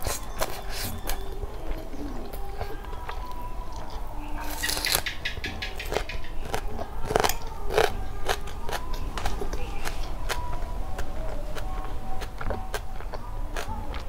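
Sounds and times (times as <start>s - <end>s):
biting into raw onion: 0.0s - 11.7s
crunchy chewing: 0.0s - 14.0s.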